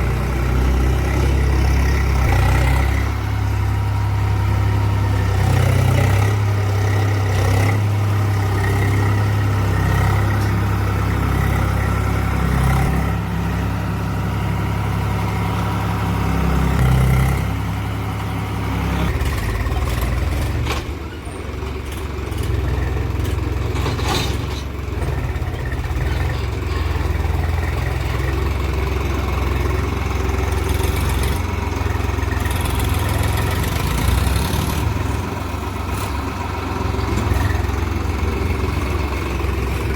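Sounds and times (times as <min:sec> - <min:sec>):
tractor diesel engine running: 0:00.0 - 0:39.9
metal clank: 0:23.7 - 0:24.8.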